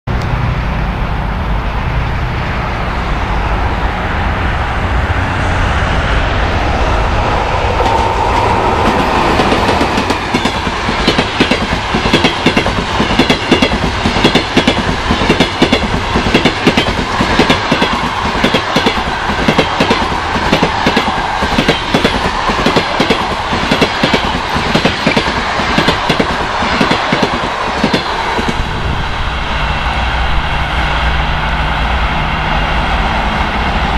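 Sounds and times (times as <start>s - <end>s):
train passing rumble: 0.1s - 33.9s
wheels clacking over rail joints: 7.7s - 28.6s.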